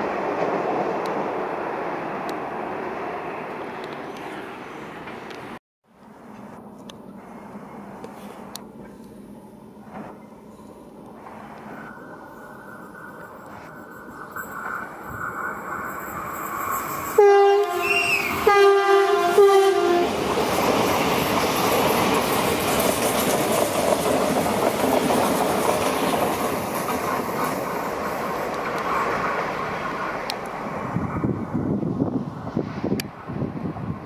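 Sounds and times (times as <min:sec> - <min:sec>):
train wheels rumbling on rails: 0:00.0 - 0:34.0
train horn blasts: 0:17.1 - 0:20.2.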